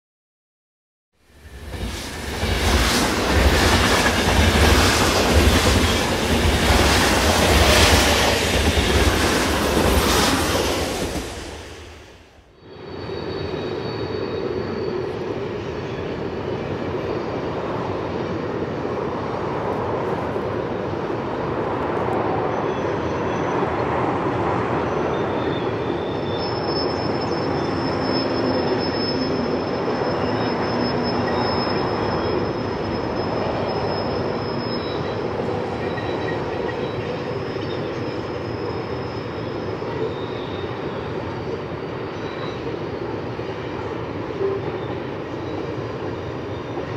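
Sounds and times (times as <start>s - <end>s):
freight train wheels rumbling: 1.3s - 46.9s
high wheel squeal: 1.4s - 17.6s, 24.8s - 46.9s.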